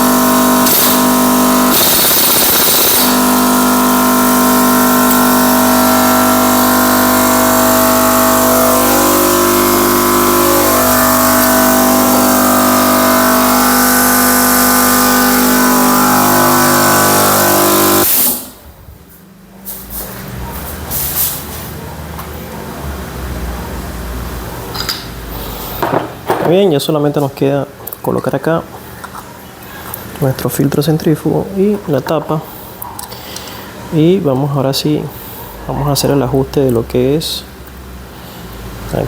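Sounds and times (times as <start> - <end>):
air compressor running: 0.0 - 18.8, 19.6 - 22.3, 23.9 - 26.3.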